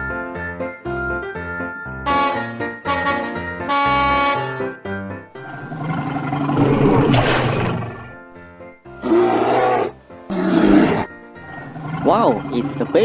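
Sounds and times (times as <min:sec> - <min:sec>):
children's background music: 0:00.0 - 0:13.0
animal roar sound effect: 0:05.4 - 0:08.0, 0:09.0 - 0:12.5.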